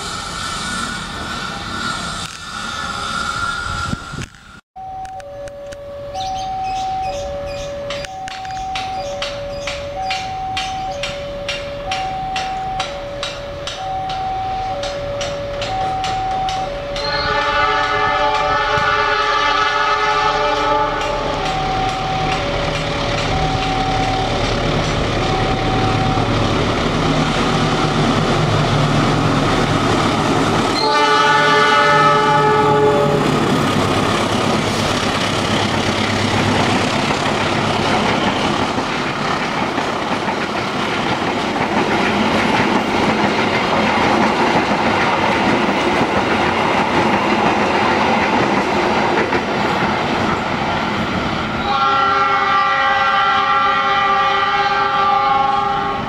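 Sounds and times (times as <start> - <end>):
locomotive engine hum: 0.0 - 52.2
train wheels clattering on rail: 7.9 - 19.0, 20.2 - 32.4, 33.2 - 51.3
train horn: 13.0 - 24.2, 30.8 - 33.4, 51.6 - 56.0.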